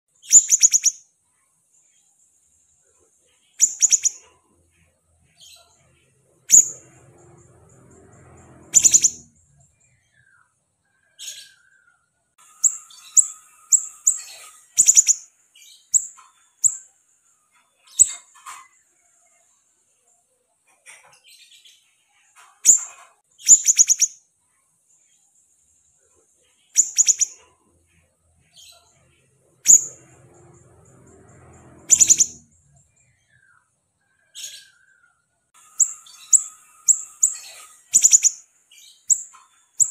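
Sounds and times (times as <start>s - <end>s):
bird chirps: 0.1s - 20.2s, 20.9s - 25.4s, 26.4s - 39.9s
songbird trilling calls: 0.2s - 1.0s, 3.6s - 4.2s, 8.8s - 9.2s, 12.6s - 15.2s, 22.7s - 24.2s, 26.8s - 27.4s, 31.9s - 32.4s, 35.8s - 38.4s, 39.1s - 39.9s.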